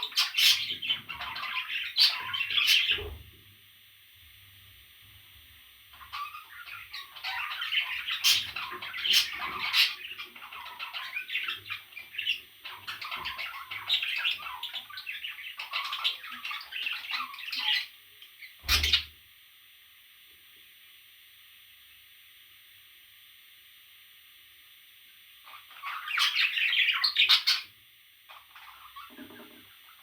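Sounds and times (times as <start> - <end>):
parrot chicks squawking: 0.0 - 3.2, 5.9 - 19.1, 25.4 - 30.0.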